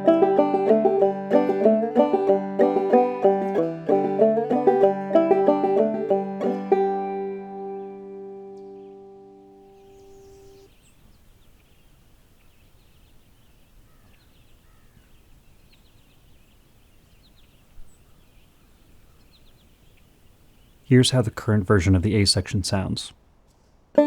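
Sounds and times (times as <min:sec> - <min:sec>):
banjo chord ringing: 0:00.0 - 0:09.8
small birds chirping: 0:09.6 - 0:22.9.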